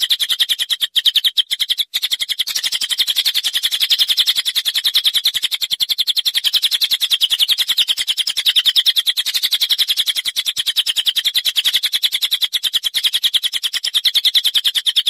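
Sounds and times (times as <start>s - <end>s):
songbird trilling: 0.0s - 9.1s.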